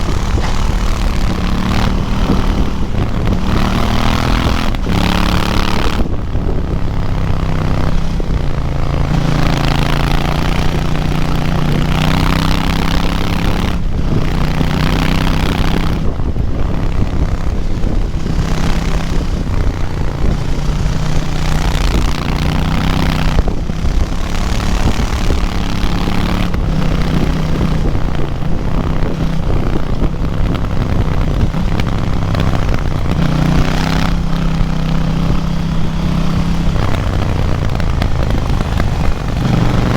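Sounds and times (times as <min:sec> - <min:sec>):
motorcycle engine accelerating: 0:00.0 - 0:39.9
wind noise: 0:00.0 - 0:39.9.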